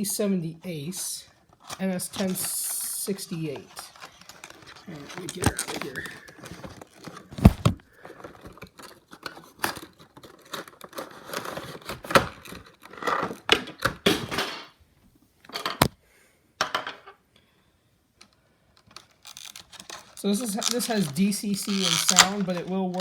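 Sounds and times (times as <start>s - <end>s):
packaging rustling and tearing: 1.3s - 13.5s, 18.8s - 23.0s.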